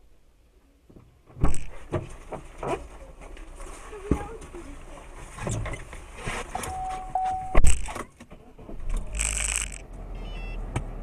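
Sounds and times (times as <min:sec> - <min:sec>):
electronic beep: 0:06.7 - 0:07.7, 0:10.2 - 0:10.6.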